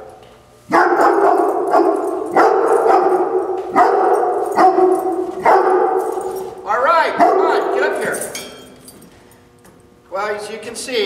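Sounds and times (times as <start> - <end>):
dog barking: 0.7 - 6.5, 7.1 - 7.8.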